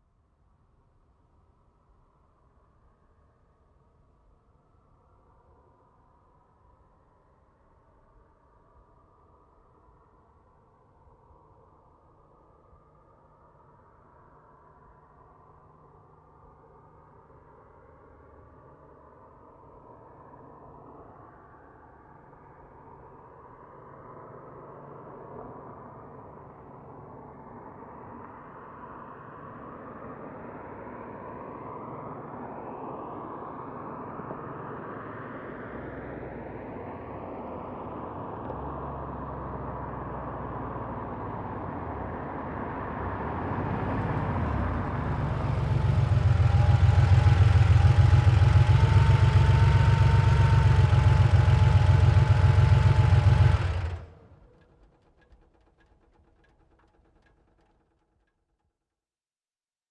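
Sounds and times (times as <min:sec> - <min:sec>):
car engine approaching and idling: 0:34.7 - 0:58.2.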